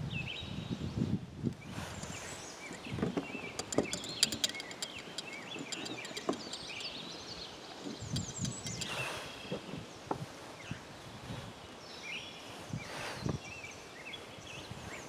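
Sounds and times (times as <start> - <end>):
small birds chirping: 1.6 - 10.0.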